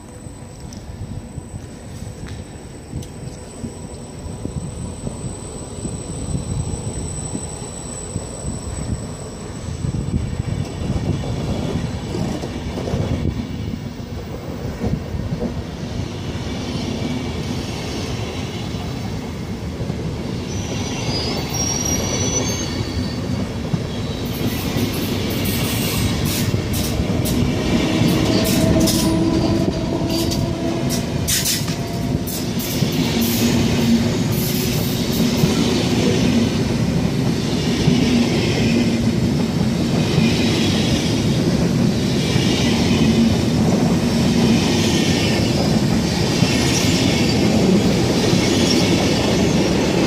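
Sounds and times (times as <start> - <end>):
train wheels rumbling on rail: 0.0 - 50.0
high wheel squeal: 3.2 - 11.3, 20.4 - 36.1.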